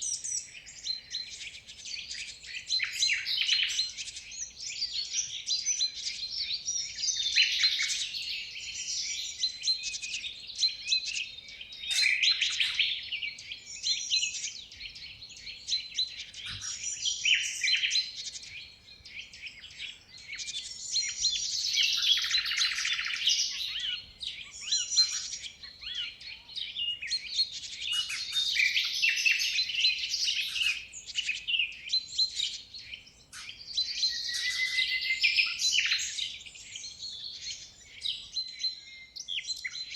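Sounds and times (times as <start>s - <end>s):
many birds chirping: 0.0s - 39.9s.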